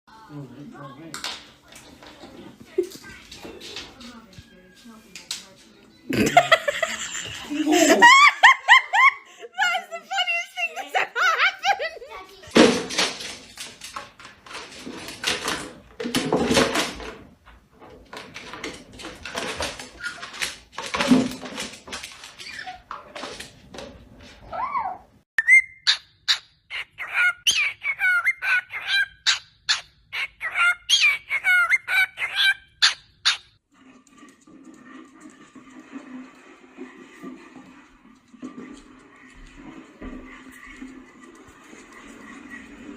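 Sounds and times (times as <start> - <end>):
parrot chirps and whistles: 24.5 - 33.5
parrot squawking: 24.5 - 33.6.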